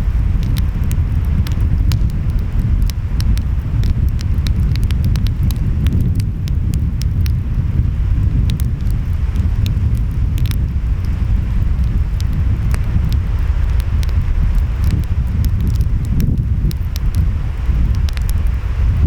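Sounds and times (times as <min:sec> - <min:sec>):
surf and wind rumble: 0:00.0 - 0:19.0
wood fire crackling and popping: 0:00.0 - 0:19.0.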